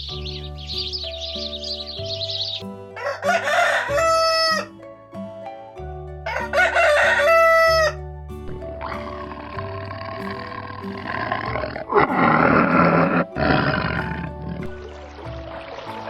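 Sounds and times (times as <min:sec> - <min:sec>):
background music: 0:00.0 - 0:16.0
rooster crowing: 0:03.0 - 0:04.7, 0:06.3 - 0:08.0.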